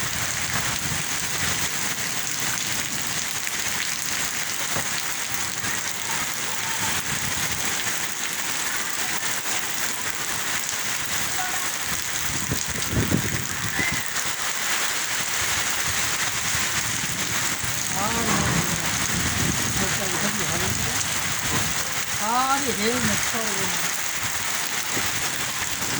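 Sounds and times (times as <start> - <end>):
steady rain falling: 0.0 - 25.9
low rumble: 17.1 - 22.0.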